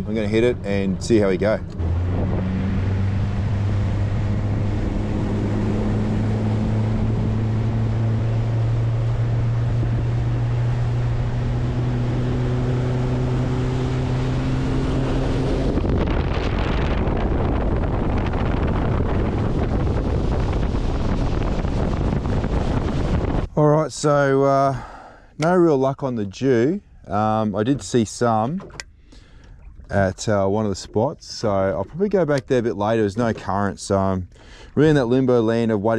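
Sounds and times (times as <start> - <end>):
wind on microphone: 0.0 - 23.5
boat engine running: 0.0 - 35.9
water: 0.0 - 35.9.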